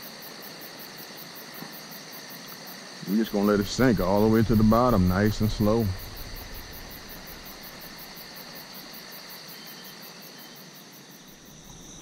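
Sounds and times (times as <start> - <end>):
insects chirping: 0.0 - 12.0
soft outdoor hiss: 0.0 - 12.0.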